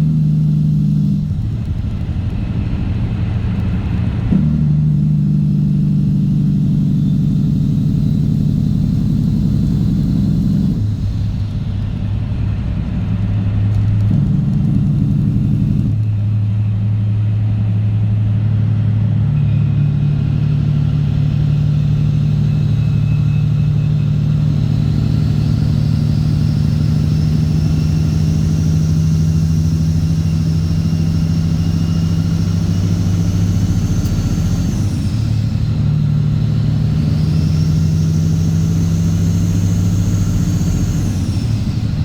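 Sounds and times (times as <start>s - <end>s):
diesel truck engine running: 0.0s - 42.0s
faint rising whine: 19.3s - 42.0s.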